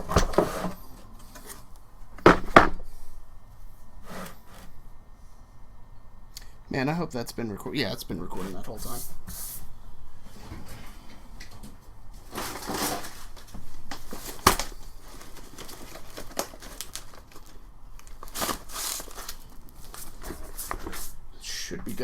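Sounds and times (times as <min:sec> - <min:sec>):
sandpaper scraping: 0:04.0 - 0:04.7.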